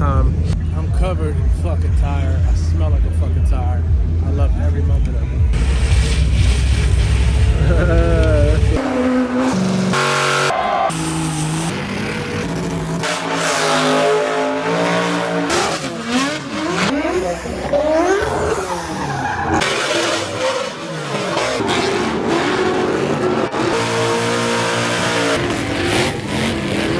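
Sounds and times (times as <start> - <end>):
car engine revving: 5.3 - 26.9
tires squealing: 5.6 - 26.9.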